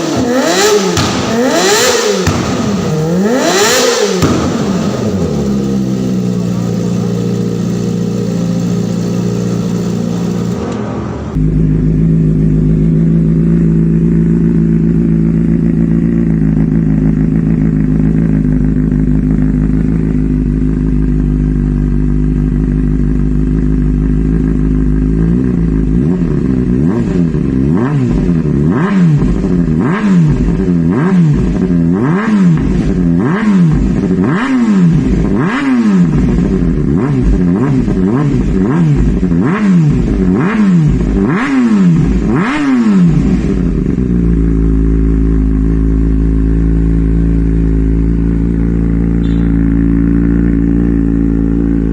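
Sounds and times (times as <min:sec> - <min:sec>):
exhaust crackles: 0:00.0 - 0:12.4
motorcycle engine idling and revving: 0:00.0 - 0:51.9.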